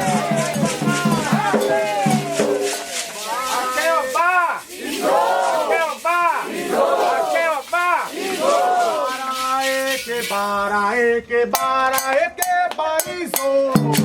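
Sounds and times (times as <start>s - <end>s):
voices chanting: 0.0s - 11.1s.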